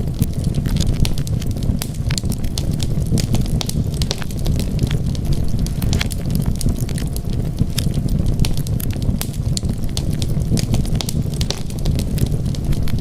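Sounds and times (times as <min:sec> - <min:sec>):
low rumble of burning fire: 0:00.0 - 0:13.0
wood fire popping and snapping: 0:00.0 - 0:13.0.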